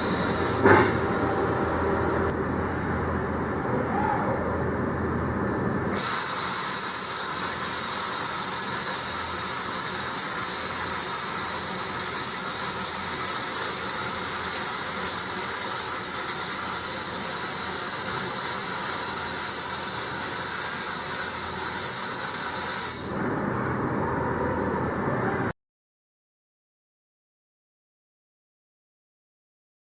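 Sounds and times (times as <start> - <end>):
welding arc hissing: 0.0 - 2.3, 5.5 - 23.3
machine hum: 0.0 - 5.4.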